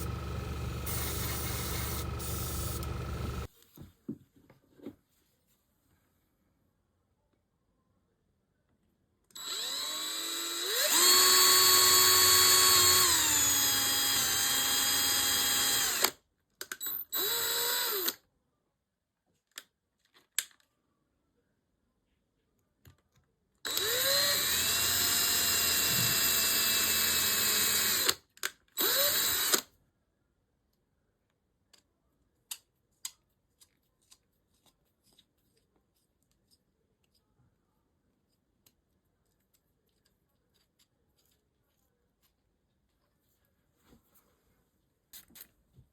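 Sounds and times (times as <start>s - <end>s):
power tool whining: 0.0s - 3.5s, 9.4s - 16.1s, 23.7s - 28.2s, 28.8s - 29.6s.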